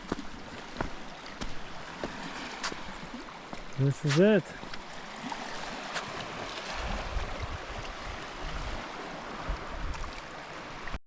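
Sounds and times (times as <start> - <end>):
small waves on rocky shore: 0.0 - 11.0
wind buffeting microphone: 5.7 - 10.2.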